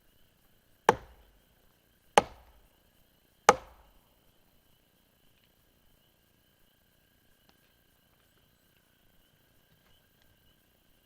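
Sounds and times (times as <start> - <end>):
sharp chopping strikes: 0.9 - 1.4, 2.2 - 2.7, 3.5 - 4.0.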